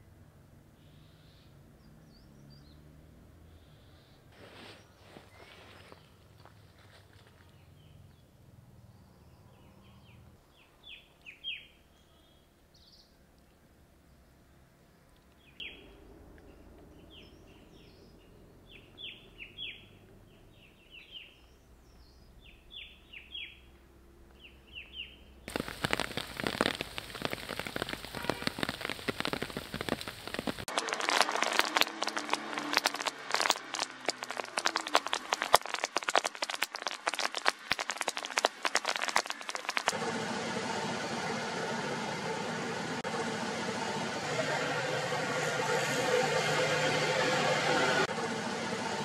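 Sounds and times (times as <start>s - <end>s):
heavy rain: 25.5s - 49.0s.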